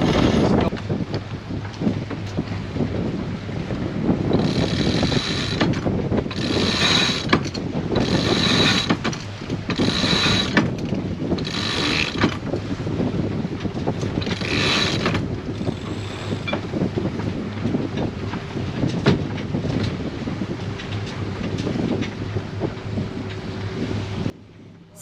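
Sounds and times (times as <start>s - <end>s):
wind and water rumble: 0.0s - 25.0s
winch ratcheting: 4.4s - 12.4s, 14.0s - 16.6s.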